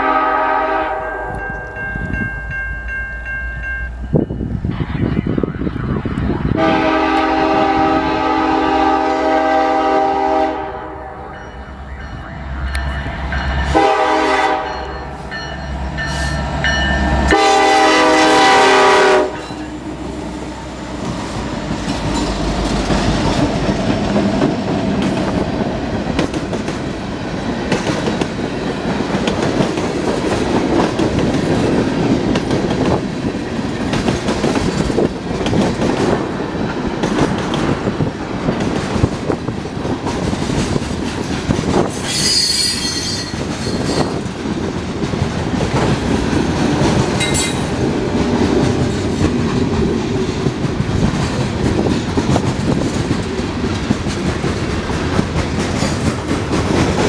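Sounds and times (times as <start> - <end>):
locomotive air horn blasts: 0.0 - 1.8, 6.6 - 11.4, 13.7 - 15.0, 17.3 - 19.7
diesel locomotives passing: 0.0 - 57.0
train wheels clattering on rails: 21.0 - 57.0.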